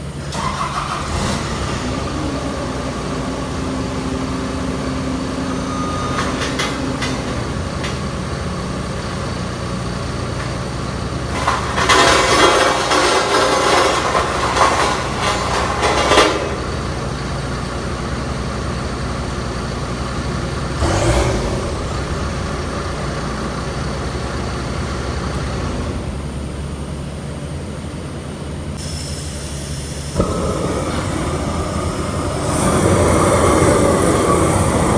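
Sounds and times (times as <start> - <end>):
engine running: 0.0 - 34.9
welding arc crackle: 28.8 - 34.9.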